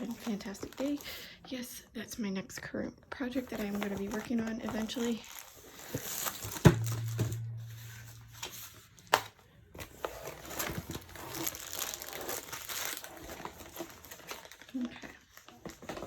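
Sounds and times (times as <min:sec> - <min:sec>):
plastic packaging crinkling: 0:00.0 - 0:01.3, 0:03.4 - 0:16.0
low hum: 0:06.8 - 0:09.3.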